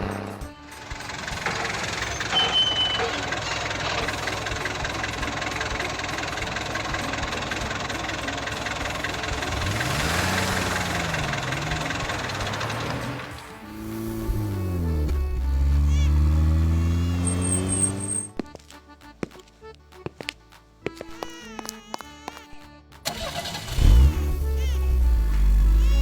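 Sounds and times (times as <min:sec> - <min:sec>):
vehicle engine running: 0:00.0 - 0:20.2, 0:23.0 - 0:26.0
short high beep: 0:02.1 - 0:03.2.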